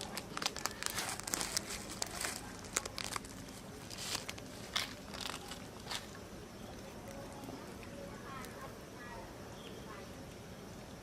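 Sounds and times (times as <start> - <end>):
crinkling rustling: 0.0 - 6.2.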